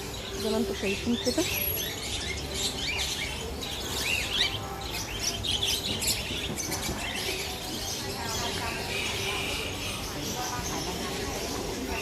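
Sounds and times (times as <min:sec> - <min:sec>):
small birds chirping and twittering: 0:00.0 - 0:12.0.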